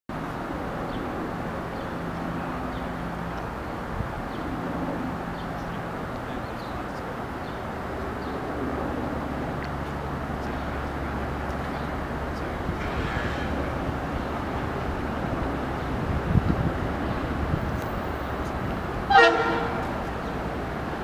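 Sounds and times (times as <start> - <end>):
distant train rumble: 0.1 - 21.0
small birds chirping: 5.3 - 8.6, 9.7 - 12.7.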